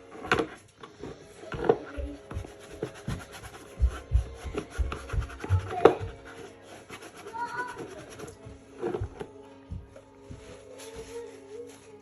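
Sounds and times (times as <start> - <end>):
rubbing and scrubbing plastic: 0.0 - 9.3.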